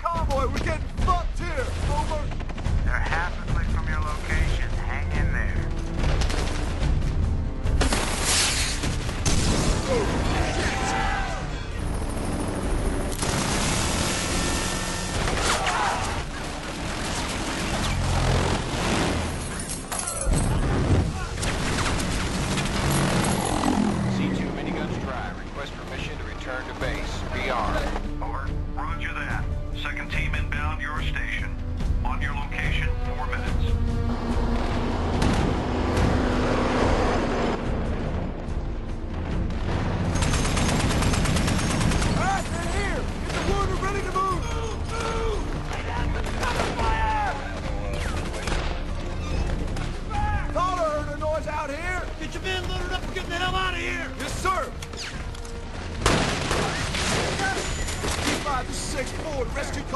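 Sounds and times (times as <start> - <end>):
music: 0.0 - 59.9
rapid gunfire: 12.0 - 15.6, 16.2 - 19.6, 39.5 - 43.8.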